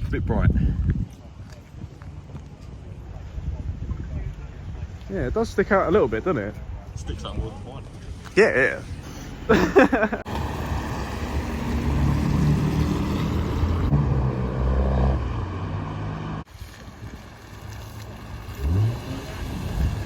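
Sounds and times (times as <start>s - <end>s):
engine revving: 10.2s - 16.5s, 18.0s - 20.0s.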